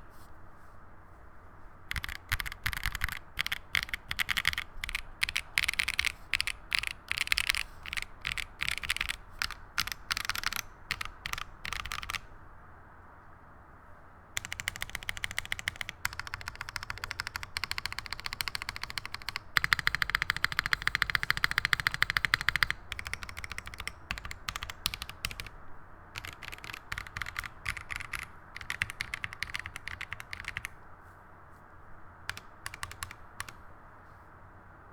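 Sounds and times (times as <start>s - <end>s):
mechanical keyboard typing: 1.9s - 12.3s, 14.4s - 25.6s, 26.2s - 30.8s, 32.3s - 33.7s.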